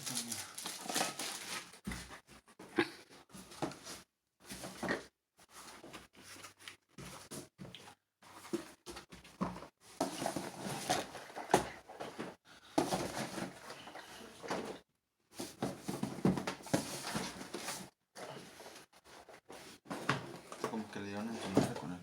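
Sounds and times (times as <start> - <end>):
packaging crinkling: 0.0 - 1.7.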